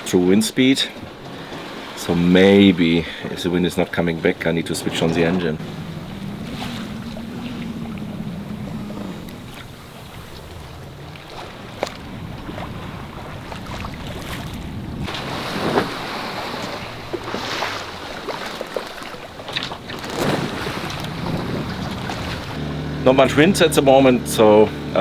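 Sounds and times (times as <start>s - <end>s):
water sloshing along a hull: 0.0s - 25.0s
wind on microphone: 4.4s - 18.3s, 19.5s - 25.0s.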